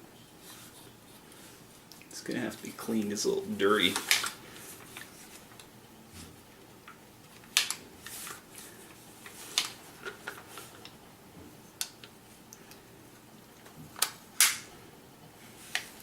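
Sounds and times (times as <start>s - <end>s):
rustling: 0.1s - 6.4s.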